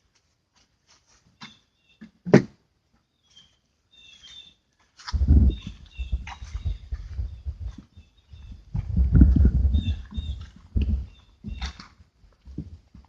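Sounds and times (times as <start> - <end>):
bird chirps: 3.0 - 4.6, 5.2 - 8.7, 9.7 - 11.9
low rumbling noise: 5.2 - 11.7.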